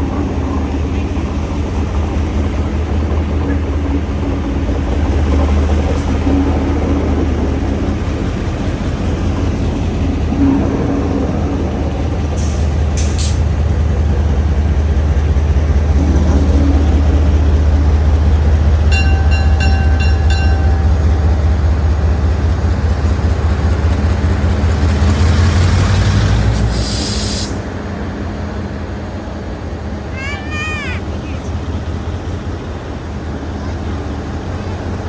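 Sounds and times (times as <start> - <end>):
locomotive engine drone: 0.0 - 35.0
brake air hissing: 26.5 - 27.6.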